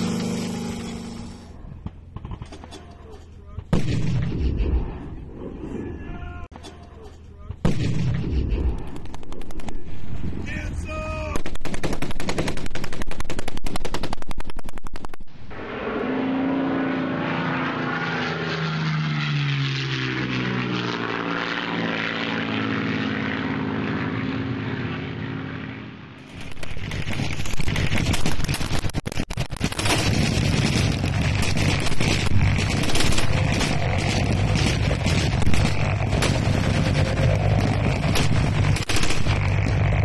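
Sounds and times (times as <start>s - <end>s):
machine gun fire: 11.4s - 15.2s, 26.3s - 40.0s
low-flying aircraft passing over: 15.5s - 27.3s, 32.2s - 40.0s.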